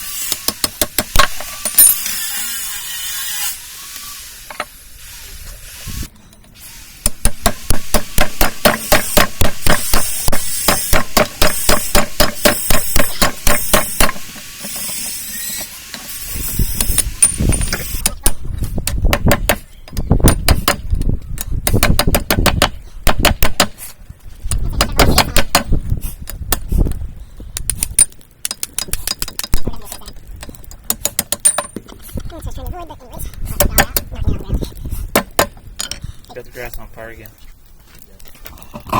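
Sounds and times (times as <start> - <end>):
steady hiss: 0.0 - 18.8
hammer striking steel: 7.0 - 14.8.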